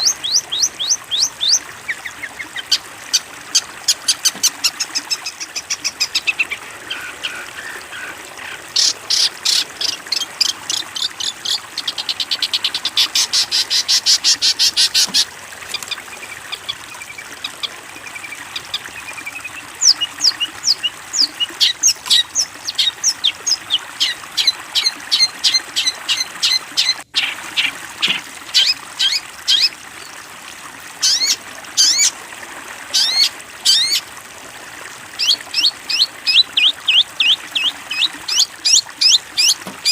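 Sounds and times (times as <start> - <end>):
songbird singing: 0.0 - 3.2, 4.2 - 29.7, 35.2 - 39.9.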